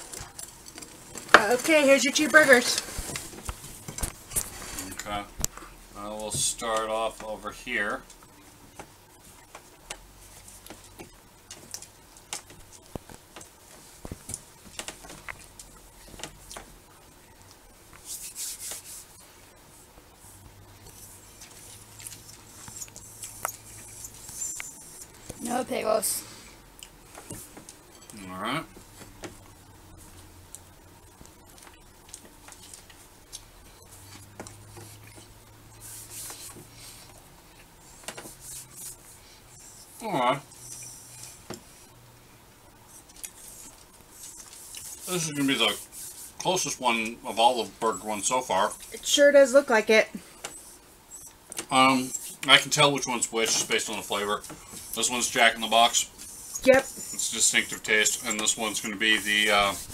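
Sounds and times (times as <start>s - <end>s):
man chewing food: 0.0s - 1.4s, 8.0s - 25.4s, 26.4s - 46.4s
low steady hum: 0.0s - 59.9s
person chewing: 14.3s - 16.7s, 20.8s - 25.2s, 26.7s - 27.1s, 30.5s - 35.9s, 43.0s - 45.2s.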